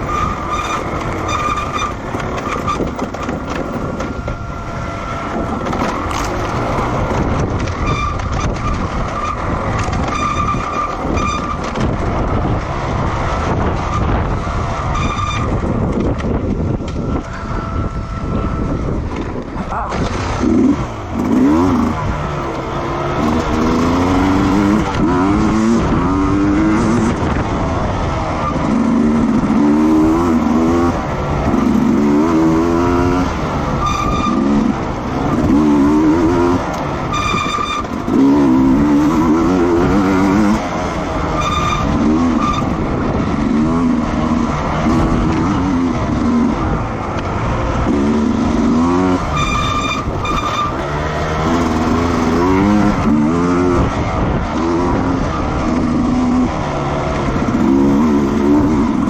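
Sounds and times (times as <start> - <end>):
racing motorcycles revving past: 19.9 - 59.0.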